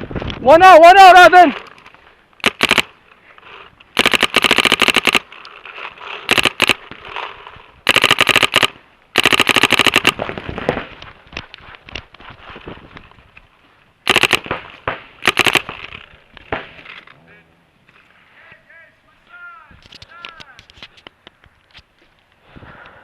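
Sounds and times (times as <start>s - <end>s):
paintball markers firing: 2.4s - 2.9s, 4.0s - 5.3s, 6.2s - 7.2s, 7.9s - 10.9s, 14.1s - 16.8s.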